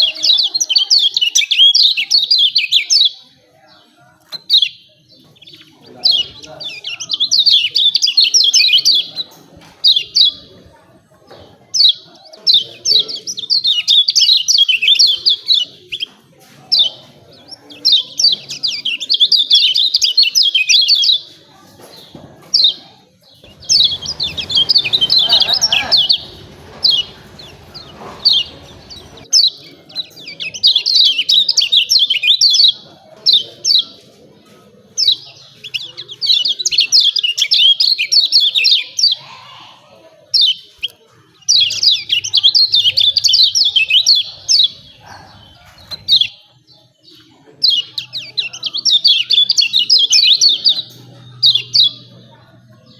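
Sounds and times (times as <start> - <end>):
low rumbling background noise: 23.4 - 29.3
white-eye chattering call: 23.5 - 29.2.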